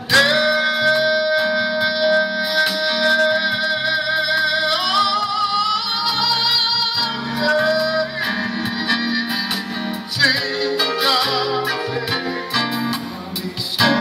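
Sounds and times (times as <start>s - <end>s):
guitar accompaniment: 0.0s - 14.0s.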